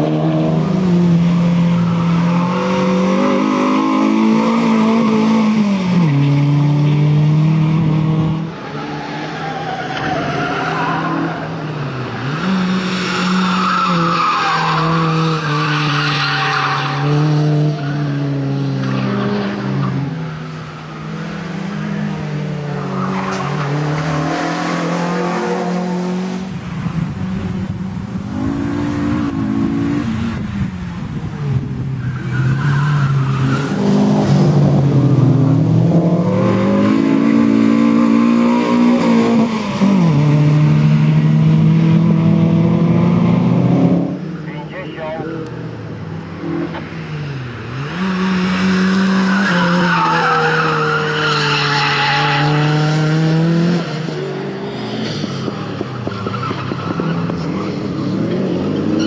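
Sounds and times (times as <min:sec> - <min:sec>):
car engine revving hard: 0:22.8 - 0:44.7, 0:47.5 - 0:55.9.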